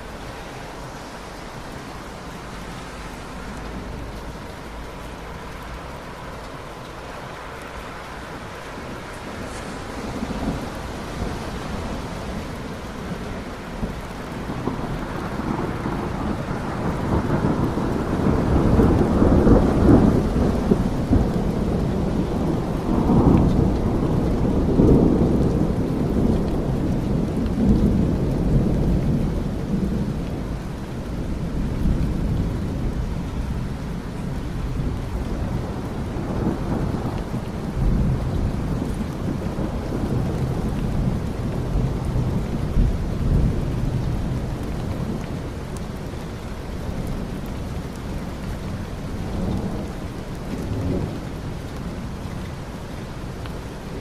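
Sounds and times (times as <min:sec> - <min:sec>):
steady rain: 0:00.0 - 0:54.0
rolling thunder: 0:08.8 - 0:46.1.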